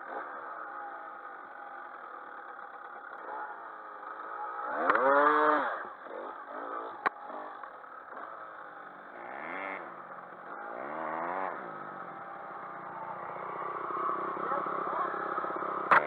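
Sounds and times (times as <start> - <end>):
dirt bike engines running: 0.0 - 16.0
dirt bike revving past: 4.6 - 7.5, 9.1 - 16.0.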